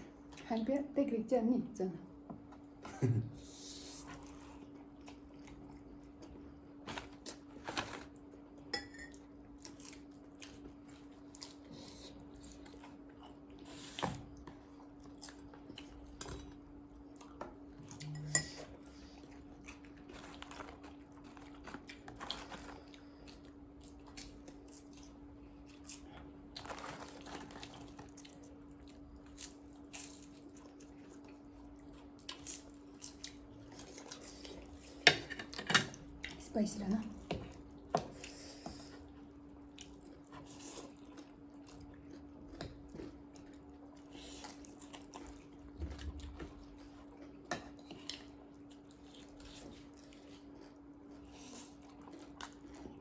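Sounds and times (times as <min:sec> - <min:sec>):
faint steady hum: 0:00.0 - 0:53.0
chewing and crunching: 0:04.1 - 0:53.0
cutlery clinking on dishes: 0:08.8 - 0:09.2, 0:18.2 - 0:18.7.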